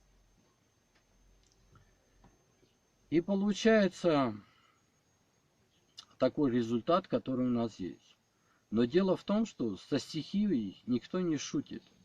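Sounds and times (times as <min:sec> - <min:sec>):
faint low hum: 0:00.0 - 0:12.0
tiny clicks: 0:00.9 - 0:01.9.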